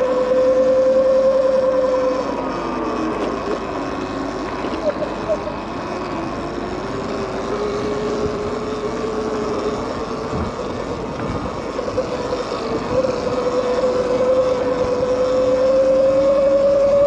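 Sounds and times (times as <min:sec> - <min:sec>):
electric bike motor whining: 0:00.0 - 0:17.0
tyre and wind noise: 0:07.1 - 0:15.4.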